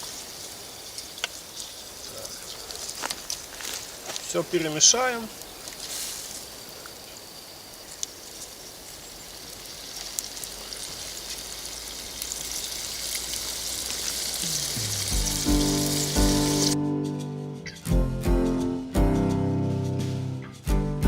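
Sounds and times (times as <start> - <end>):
beef sizzling in a skillet: 0.0 - 16.8
music: 14.4 - 21.0.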